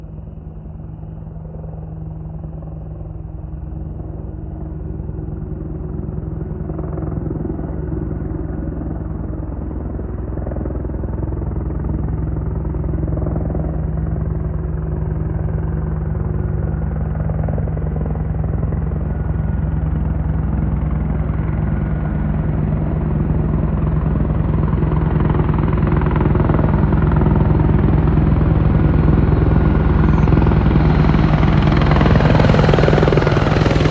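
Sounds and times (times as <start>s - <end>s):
helicopter rotor and engine drone: 0.0s - 33.9s.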